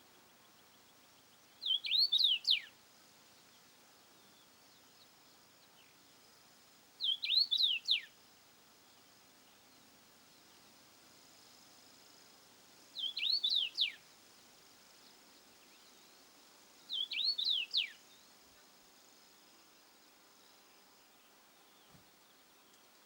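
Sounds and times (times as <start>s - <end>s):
songbird whistling phrase: 1.6s - 2.7s, 7.0s - 8.1s, 13.0s - 14.0s, 16.9s - 18.0s.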